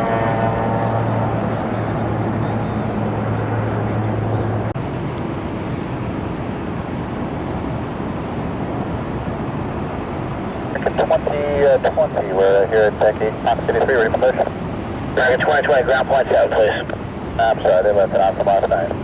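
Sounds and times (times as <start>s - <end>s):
low hum: 0.0s - 12.3s
jet engine rushing: 0.0s - 18.8s.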